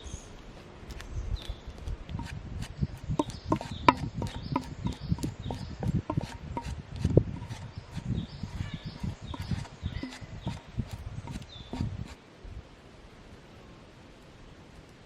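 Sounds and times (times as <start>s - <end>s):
rubbing: 1.8s - 12.2s
wooden knocking and clattering: 3.2s - 12.2s.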